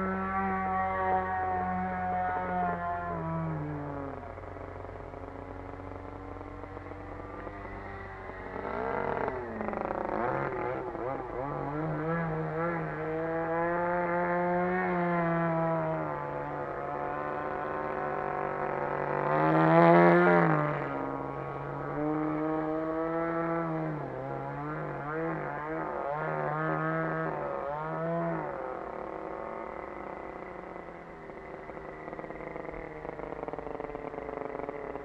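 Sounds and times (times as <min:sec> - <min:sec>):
model plane engine in flight: 0:00.0 - 0:35.0.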